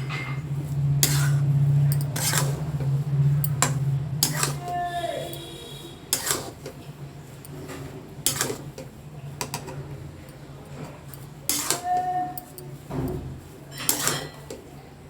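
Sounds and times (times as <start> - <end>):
low steady hum: 0.0 - 6.2
metal utensil scraping a pan: 0.0 - 9.7, 11.1 - 14.7.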